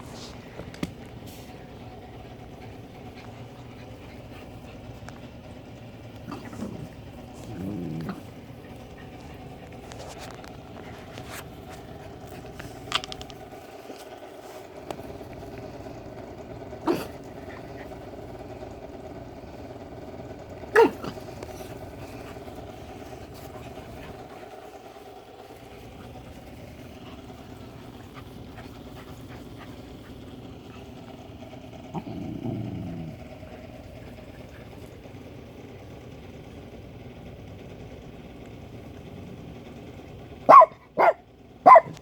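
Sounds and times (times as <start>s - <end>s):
steady low hum: 0.0s - 42.0s
dog barking: 40.5s - 42.0s.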